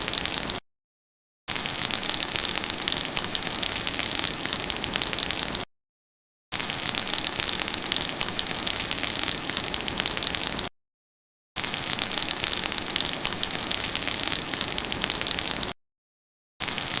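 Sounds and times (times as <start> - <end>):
steady rain patter: 0.0 - 0.6, 1.5 - 5.7, 6.5 - 10.7, 11.6 - 15.8, 16.6 - 17.0.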